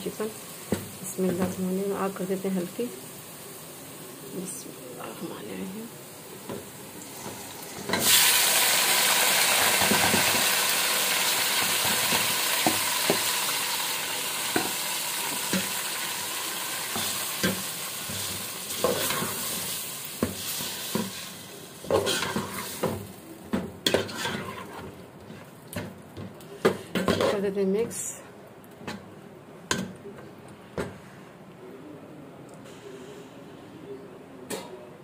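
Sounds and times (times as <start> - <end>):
chicken sizzling in hot oil: 6.0 - 23.2
metal spoon scraping pot: 23.9 - 24.9.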